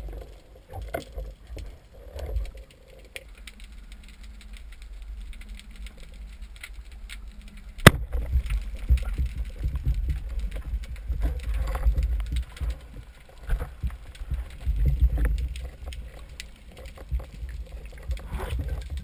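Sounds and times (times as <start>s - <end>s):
faint underwater clicks: 0.0s - 19.0s
low underwater rumble: 3.7s - 19.0s
sharp crack: 7.6s - 9.5s.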